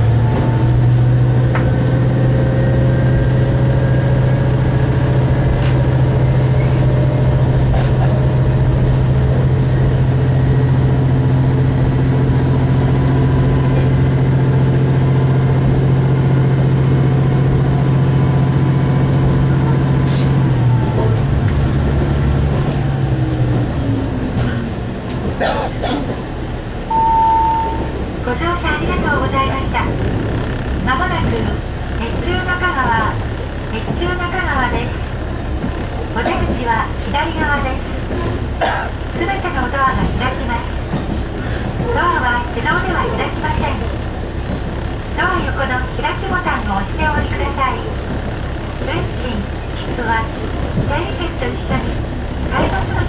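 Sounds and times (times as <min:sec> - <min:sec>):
diesel railcar engine droning: 0:00.0 - 0:53.0
wheels clicking on rails: 0:27.4 - 0:53.0.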